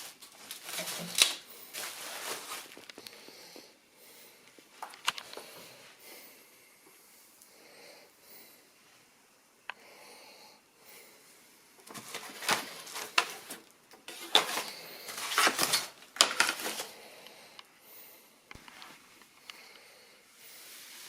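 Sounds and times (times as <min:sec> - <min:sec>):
handling rustling and clatter: 0:00.0 - 0:03.0, 0:11.8 - 0:16.9.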